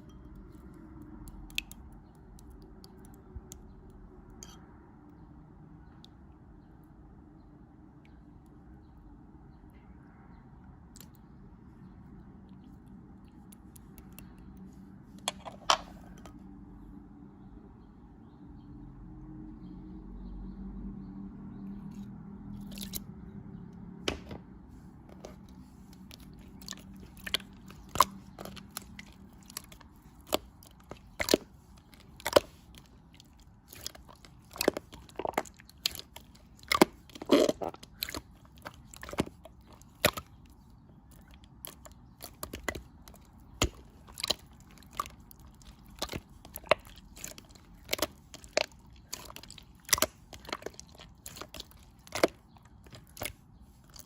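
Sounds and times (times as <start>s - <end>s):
sharp crunching and crackling: 25.2s - 54.0s.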